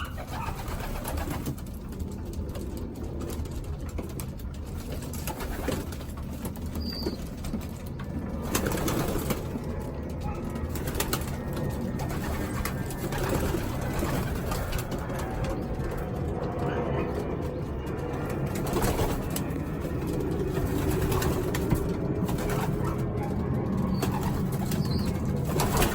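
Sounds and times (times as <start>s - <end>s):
pigeons cooing: 0.0s - 25.9s.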